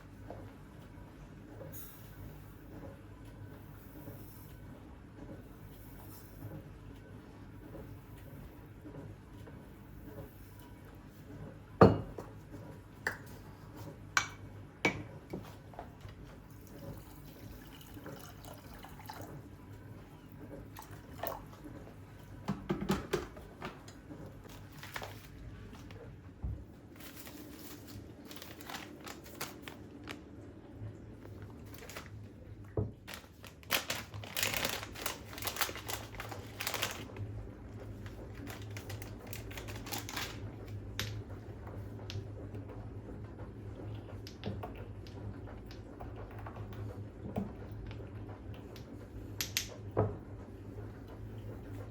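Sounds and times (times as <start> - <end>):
low steady hum: 0.0 - 51.9
water running: 16.2 - 26.0.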